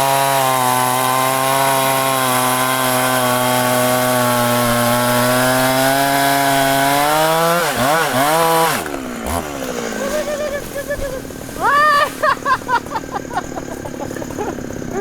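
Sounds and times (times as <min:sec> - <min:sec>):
chainsaw cutting at full throttle: 0:00.0 - 0:15.0.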